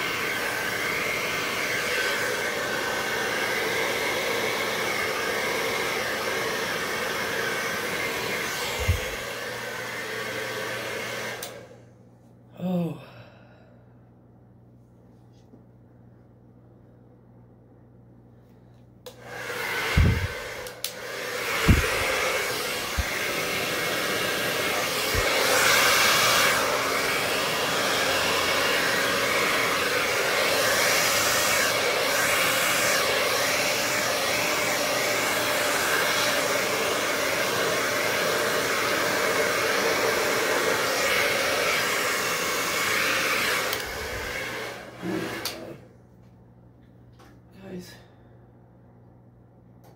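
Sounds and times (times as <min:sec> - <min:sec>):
hair dryer blowing: 0:00.0 - 0:11.8, 0:19.0 - 0:45.9.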